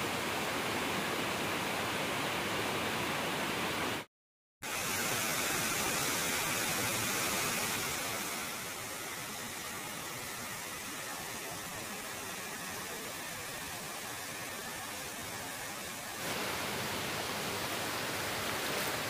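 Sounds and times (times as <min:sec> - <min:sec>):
waterfall rushing: 0:04.6 - 0:19.0.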